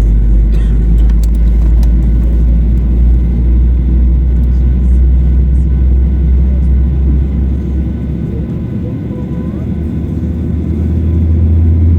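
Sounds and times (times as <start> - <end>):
aircraft cabin engine rumble: 0.0 - 11.9.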